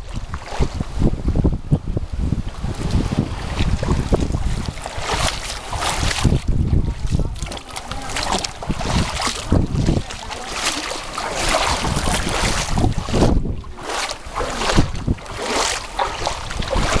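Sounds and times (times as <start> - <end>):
seawater surging and splashing: 0.0 - 17.0
wind gusting on microphone: 0.0 - 17.0.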